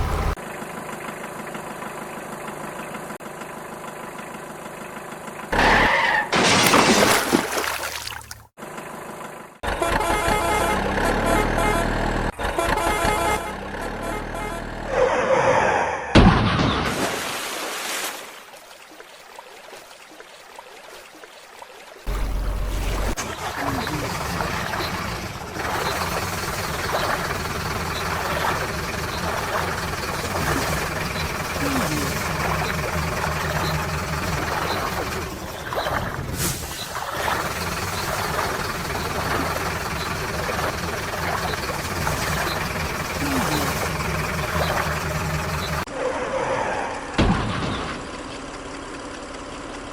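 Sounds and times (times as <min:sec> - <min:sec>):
vehicle engine rumbling: 0:00.0 - 0:15.8, 0:22.1 - 0:49.9.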